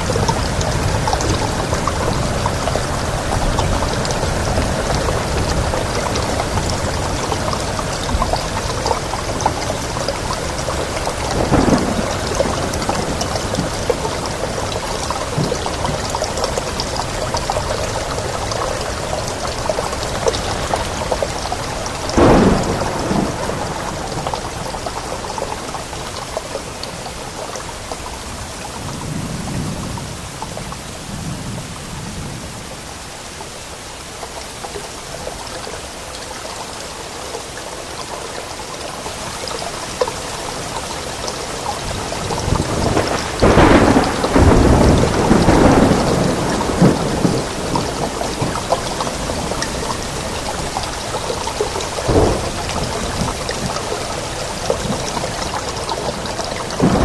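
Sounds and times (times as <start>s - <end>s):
thunder: 0.0s - 25.4s, 41.9s - 50.8s, 51.9s - 53.8s, 54.7s - 57.0s
steady rain: 0.0s - 57.0s.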